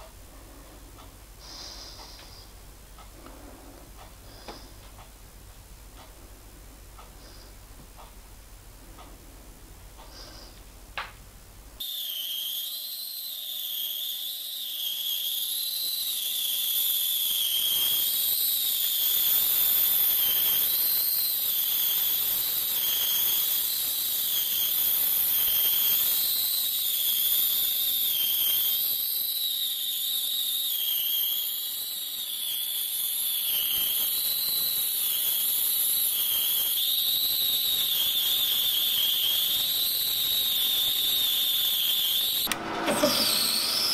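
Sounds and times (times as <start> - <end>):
hiss of cutting or grinding: 1.4 - 4.8, 33.5 - 43.9
machine tool whining: 42.2 - 43.9
single click: 42.4 - 43.6.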